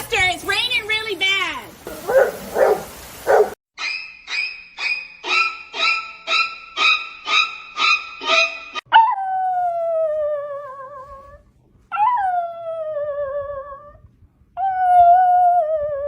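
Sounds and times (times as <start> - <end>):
dog howling: 1.9 - 3.6.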